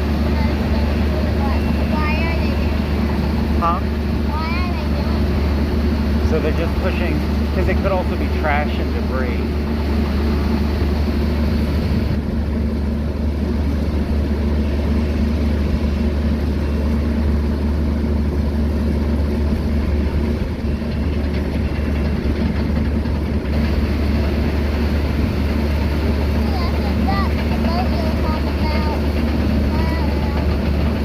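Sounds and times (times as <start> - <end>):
heavy diesel engine droning: 0.0 - 31.0.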